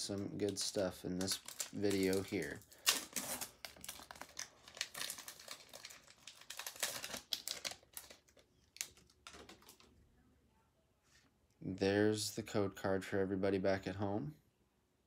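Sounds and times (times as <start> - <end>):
foil wrapper tearing and crinkling: 0.4 - 9.8.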